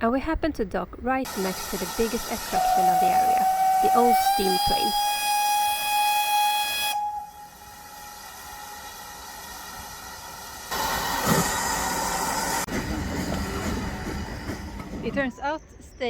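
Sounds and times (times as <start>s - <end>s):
steam locomotive whistle: 1.3s - 12.6s
locomotive engine running: 1.3s - 15.4s.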